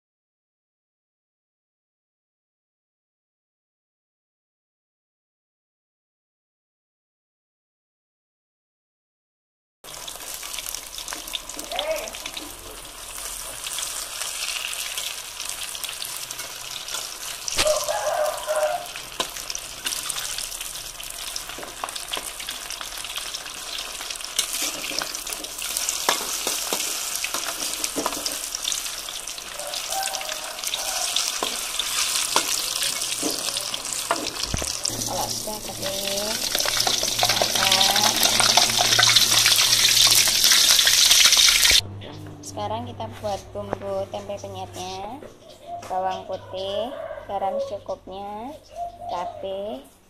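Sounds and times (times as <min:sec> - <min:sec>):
food deep-frying in oil: 0:09.9 - 0:41.8.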